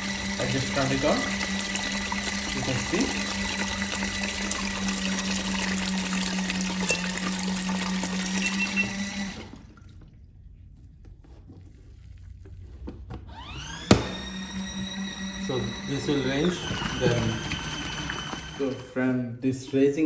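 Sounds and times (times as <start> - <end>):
washing machine motor hum: 0.0 - 10.2, 13.1 - 19.0
water churning: 0.0 - 10.2, 13.7 - 18.9
rising motor whine: 13.3 - 18.9.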